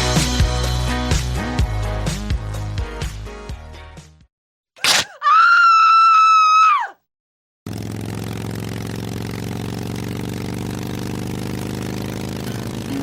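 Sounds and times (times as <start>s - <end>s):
sharp brief sound: 4.8s - 5.2s
loud high-pitched scream: 4.8s - 7.0s.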